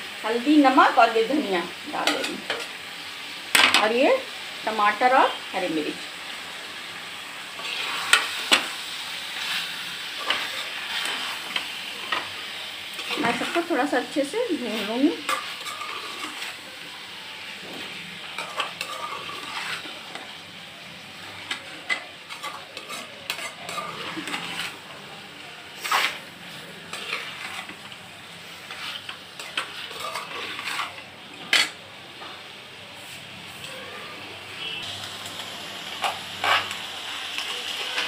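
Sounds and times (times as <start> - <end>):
meat sizzling in oil: 0.0 - 38.0
metal spoon scraping pan: 1.9 - 2.8, 7.6 - 16.6, 17.7 - 20.2, 21.2 - 24.9, 25.8 - 27.9, 28.5 - 31.8, 36.0 - 36.8.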